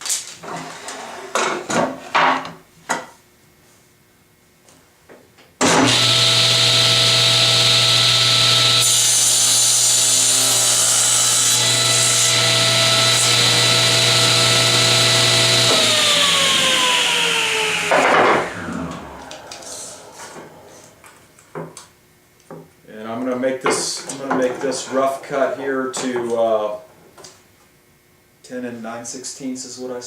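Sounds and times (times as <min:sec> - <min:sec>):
saw cutting wood: 0:05.6 - 0:20.8
table saw running: 0:05.6 - 0:20.9
saw coasting down: 0:05.7 - 0:21.0.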